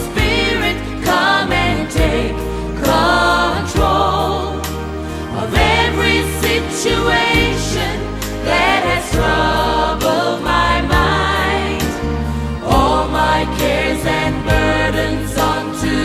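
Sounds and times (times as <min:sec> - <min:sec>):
choir singing worship song: 0:00.0 - 0:16.0
instrumental accompaniment: 0:00.0 - 0:16.0
steady bass: 0:00.0 - 0:16.0.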